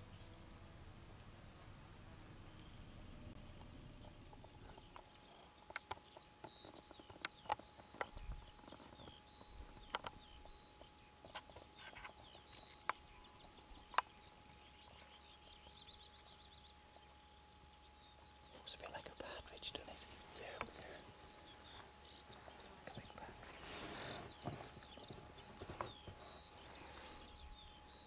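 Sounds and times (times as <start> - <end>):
small birds chirping: 0.0 - 28.0
sharp clicks: 4.9 - 8.8.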